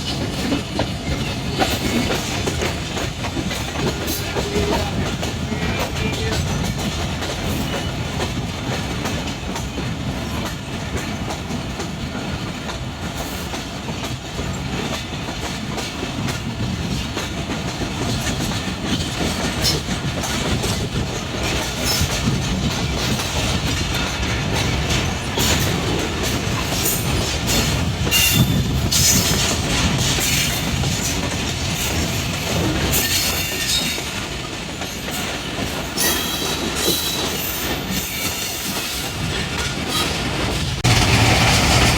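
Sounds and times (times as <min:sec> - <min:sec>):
train coaches rumbling: 0:00.0 - 0:41.9
wheels clattering over rail joints: 0:12.6 - 0:41.9.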